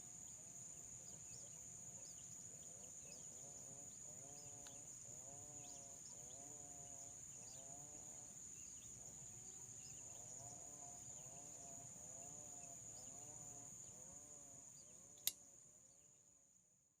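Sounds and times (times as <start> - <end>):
sharp click: 15.2 - 15.4.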